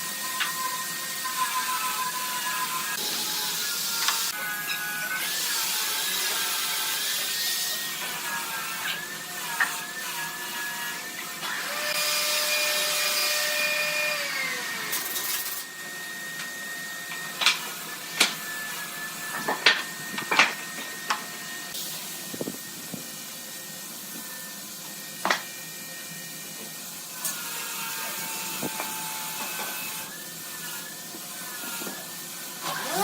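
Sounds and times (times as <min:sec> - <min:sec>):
power tool motor whining: 0:00.0 - 0:21.7, 0:27.2 - 0:33.0
hiss: 0:21.2 - 0:25.5.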